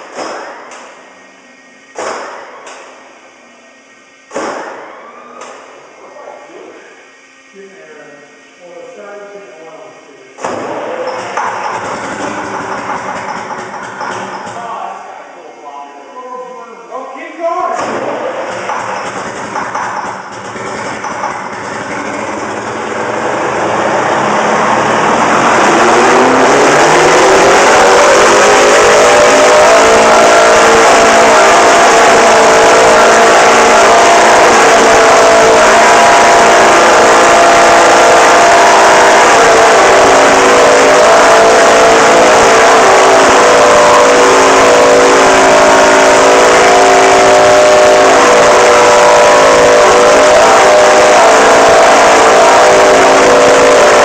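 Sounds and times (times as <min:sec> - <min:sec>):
diesel engine revving at high pitch: 0:10.3 - 0:15.3, 0:17.5 - 0:54.0.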